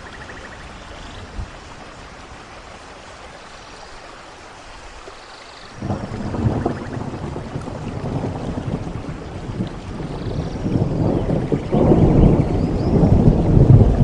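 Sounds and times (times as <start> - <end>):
rain hiss: 0.0 - 14.0
thunder rumbling: 5.8 - 14.0.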